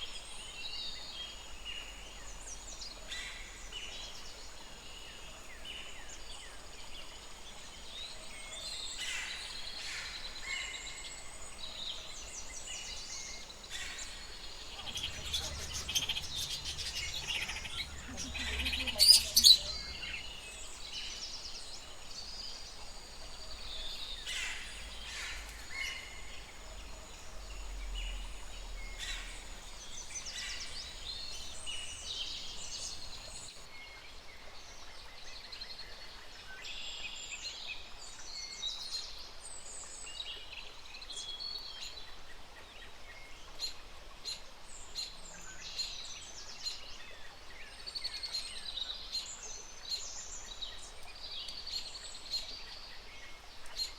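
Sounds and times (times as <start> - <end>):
birds chirping and whistling: 13.8 - 21.1
low rumble: 14.2 - 21.1.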